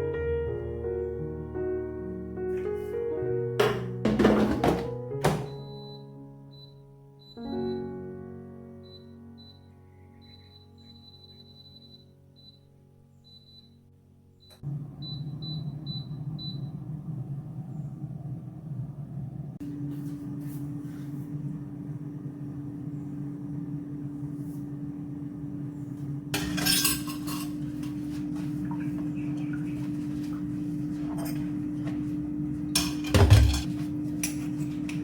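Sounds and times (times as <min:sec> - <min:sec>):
steady low hum: 0:14.6 - 0:35.0
dishes and utensils clattering: 0:26.4 - 0:35.0.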